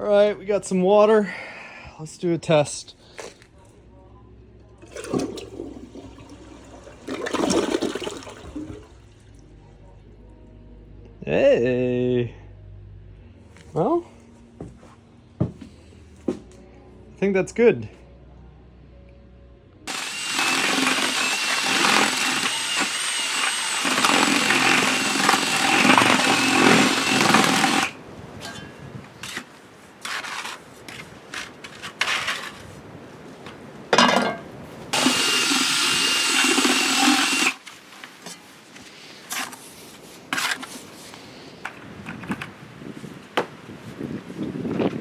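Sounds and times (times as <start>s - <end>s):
power tool motor whining: 19.9s - 28.0s, 35.0s - 37.6s.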